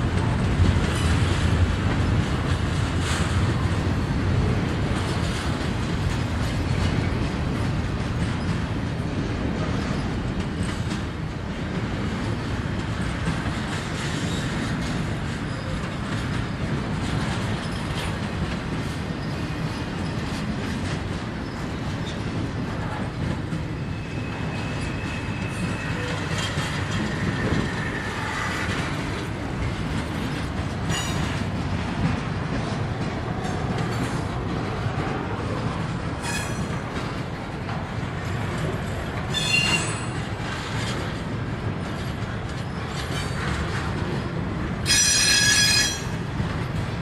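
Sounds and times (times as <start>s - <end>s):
train wheels rumbling on rail: 0.0s - 47.0s
wheel squeal: 23.8s - 28.8s, 39.3s - 40.2s, 44.9s - 46.1s.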